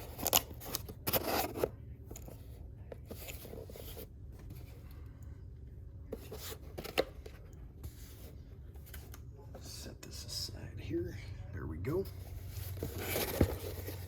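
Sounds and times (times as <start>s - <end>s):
cardboard and wrapping rustling: 0.0s - 4.9s, 6.1s - 9.2s, 12.0s - 14.0s.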